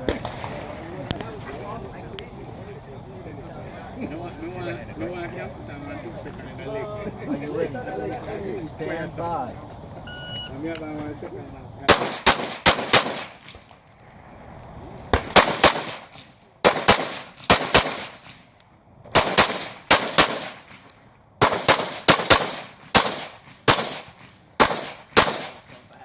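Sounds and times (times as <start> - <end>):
pistol shots: 11.9 - 13.6, 15.1 - 18.4, 19.1 - 25.8.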